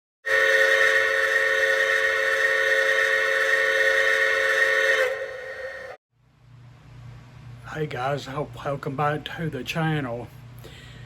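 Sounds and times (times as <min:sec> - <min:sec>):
train whistle chord: 0:00.2 - 0:06.0.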